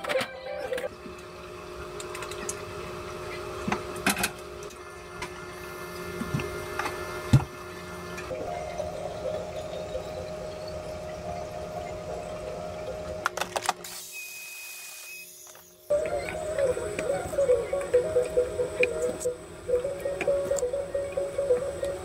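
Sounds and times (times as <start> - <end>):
espresso machine pump humming: 14.5 - 22.0.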